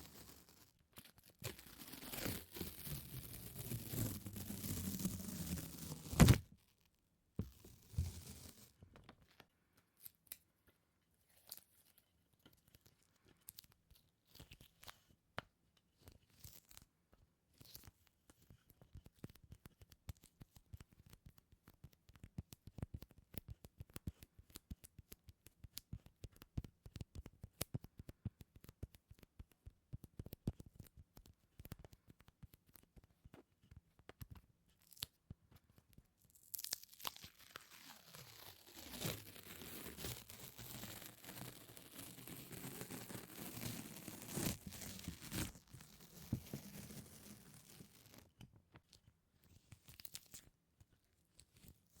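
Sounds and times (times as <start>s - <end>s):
sticky surface peeling: 1.4s - 6.5s, 36.6s - 48.2s.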